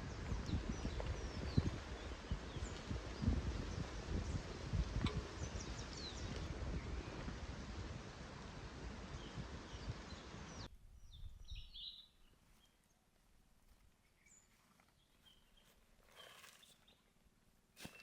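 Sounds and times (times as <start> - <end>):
faint bird chirps: 11.0 - 12.9.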